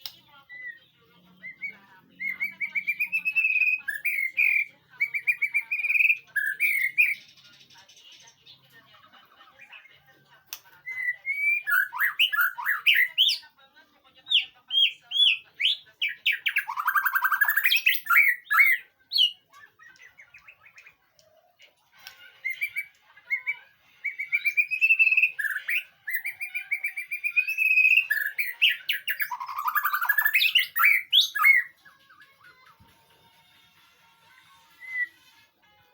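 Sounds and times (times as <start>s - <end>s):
songbird whistling and trilling: 0.0s - 7.4s, 10.8s - 13.4s, 14.3s - 21.0s, 22.4s - 32.3s, 34.7s - 35.4s.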